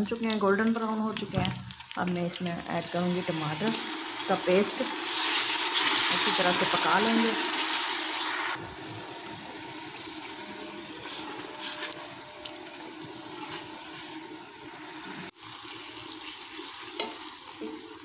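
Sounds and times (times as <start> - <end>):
onions sizzling in oil: 0.0 - 18.0
spatula stirring and scraping pot: 10.6 - 18.0.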